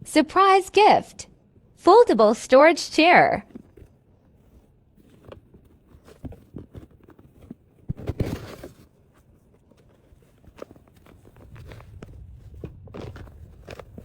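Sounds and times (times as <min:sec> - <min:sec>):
packing rustling: 0:03.6 - 0:12.0.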